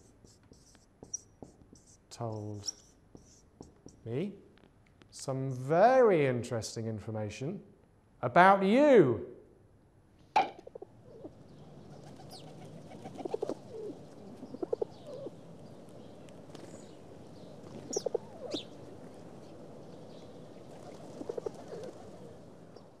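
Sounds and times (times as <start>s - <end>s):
higher bird chirps: 10.6s - 18.8s
low pulsing bird calls: 10.6s - 23.0s.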